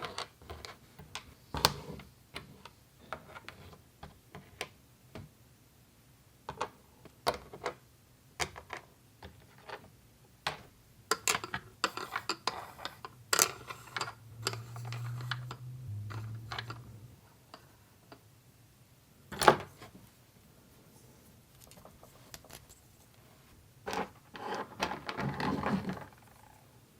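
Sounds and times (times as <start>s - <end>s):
low hum: 13.6s - 17.4s.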